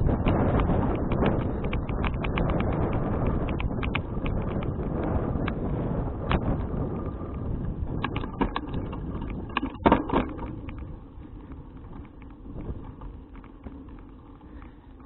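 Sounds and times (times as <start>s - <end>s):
road rumble while cycling: 0.0s - 15.0s
wind: 0.0s - 15.0s
rattling knocks and clicks: 8.0s - 10.9s.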